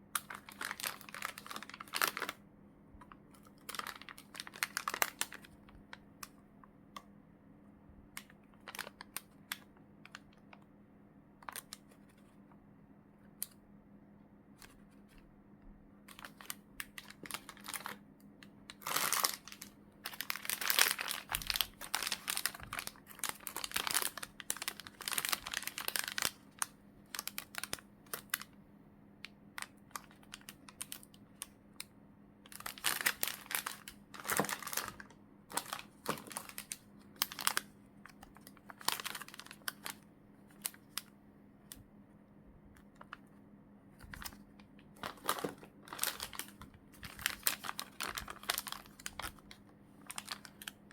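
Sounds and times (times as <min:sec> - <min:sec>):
plastic packaging crinkling: 0:00.1 - 0:02.4, 0:03.0 - 0:06.0, 0:08.5 - 0:10.3, 0:16.0 - 0:18.0, 0:18.7 - 0:28.6, 0:29.6 - 0:31.5, 0:32.4 - 0:41.1, 0:44.0 - 0:50.9.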